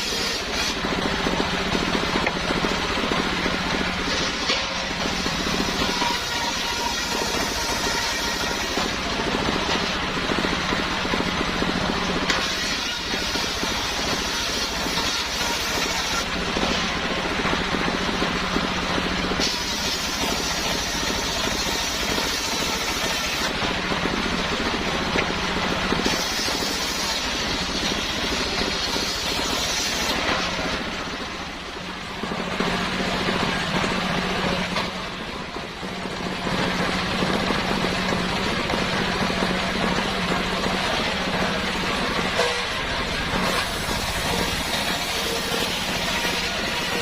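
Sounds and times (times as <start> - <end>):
engine-driven circular saw running: 0.0 - 47.0.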